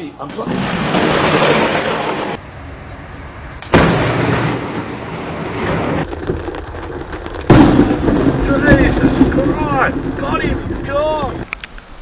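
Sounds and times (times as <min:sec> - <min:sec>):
thunder crack and rumble: 0:00.2 - 0:11.5.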